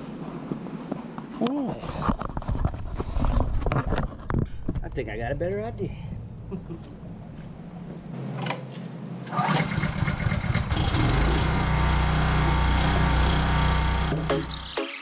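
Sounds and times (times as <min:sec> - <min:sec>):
small gasoline engine running: 0:09.3 - 0:14.3.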